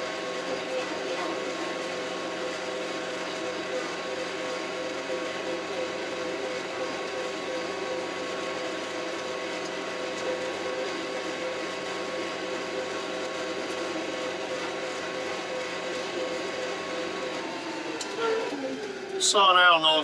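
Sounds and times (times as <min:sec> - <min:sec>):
tractor engine drone: 0:00.0 - 0:20.0
steady whine: 0:14.9 - 0:20.0.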